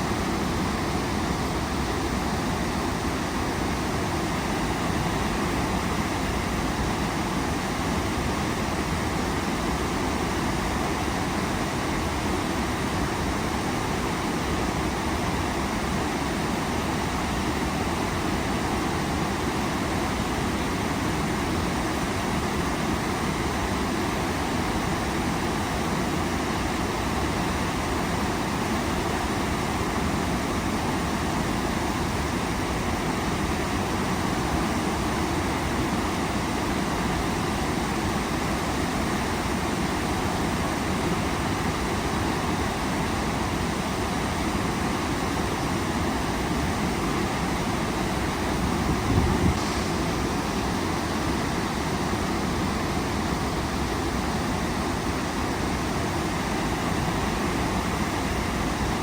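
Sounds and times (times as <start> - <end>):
waterfall crashing: 49.5 - 59.0.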